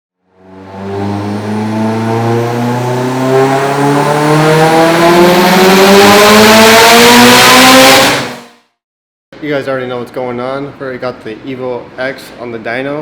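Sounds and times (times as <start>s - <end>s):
car engine at full throttle: 0.2s - 8.6s.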